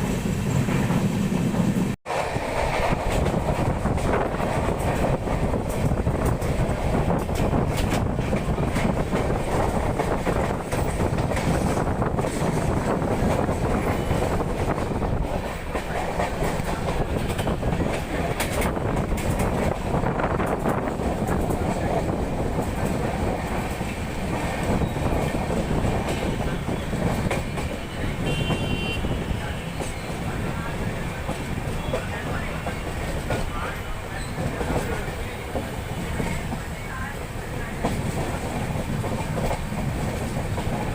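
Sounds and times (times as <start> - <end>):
train wheels rumbling on rails: 0.0 - 40.9
wheels clicking over rail joints: 2.6 - 28.8.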